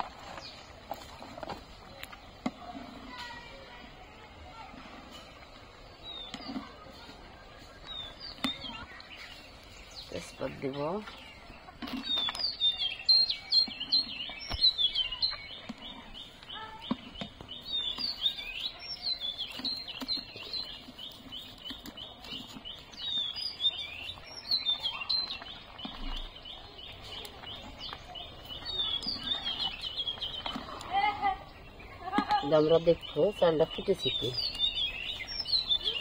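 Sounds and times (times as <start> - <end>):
small birds chirping and twittering: 0.0 - 36.0.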